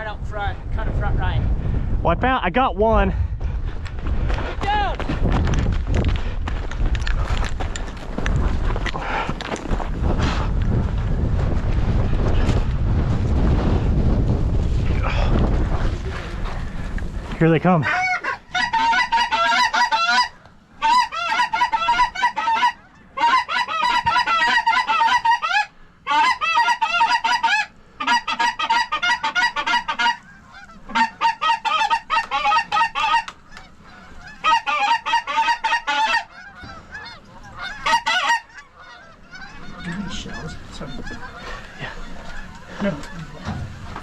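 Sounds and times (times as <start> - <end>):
goose call honks and clucks: 17.8 - 44.0.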